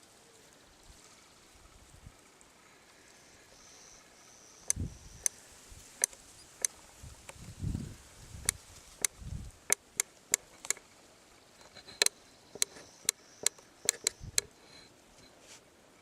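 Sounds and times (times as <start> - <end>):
sharp irregular taps: 11.8 - 14.5.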